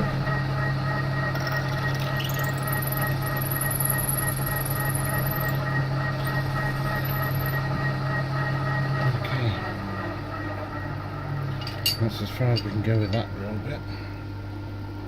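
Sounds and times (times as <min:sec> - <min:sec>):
milling machine drilling: 0:01.4 - 0:05.6.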